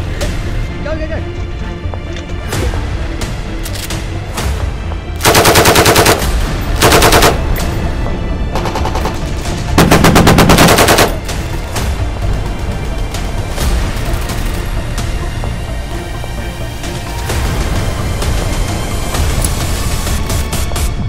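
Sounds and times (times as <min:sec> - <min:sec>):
background music: 0:00.0 - 0:21.0
machine-gun fire: 0:05.2 - 0:07.5, 0:09.8 - 0:11.2.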